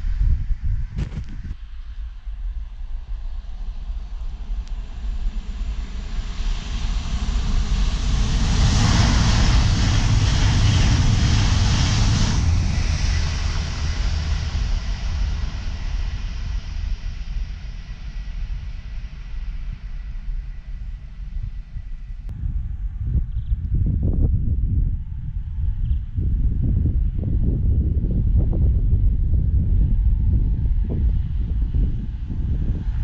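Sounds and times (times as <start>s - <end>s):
high-speed train rushing past: 1.6s - 23.1s.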